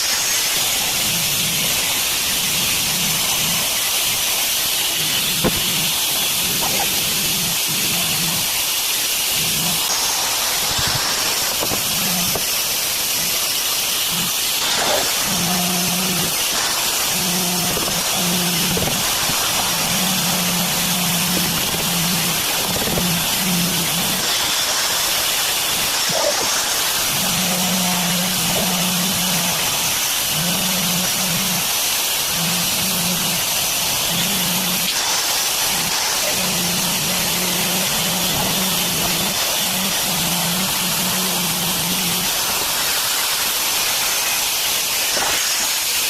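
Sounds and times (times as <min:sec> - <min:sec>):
loud steady hiss: 0:00.0 - 0:46.0.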